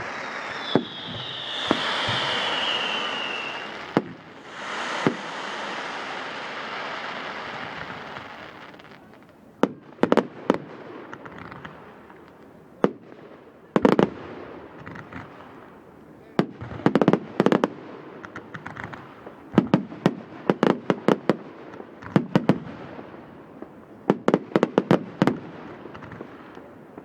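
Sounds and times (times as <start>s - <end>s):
firework whistle: 0.0s - 8.8s
firework bangs: 0.0s - 9.1s
fireworks crackling: 0.0s - 9.3s.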